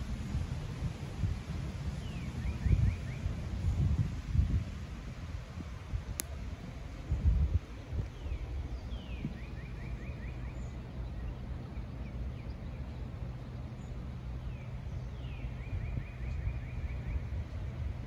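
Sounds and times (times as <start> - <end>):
songbird singing: 1.9 - 3.8, 6.2 - 18.0.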